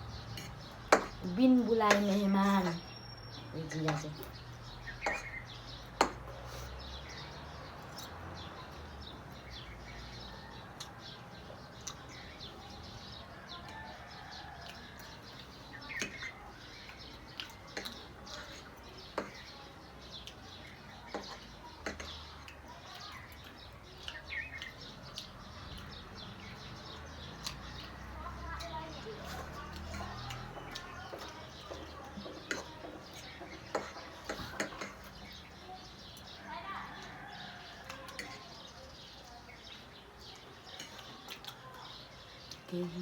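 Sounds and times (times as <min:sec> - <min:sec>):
bird chirps: 0:02.0 - 0:10.4
chewing and utensil clicks: 0:11.8 - 0:12.3, 0:13.5 - 0:36.4, 0:37.0 - 0:42.7.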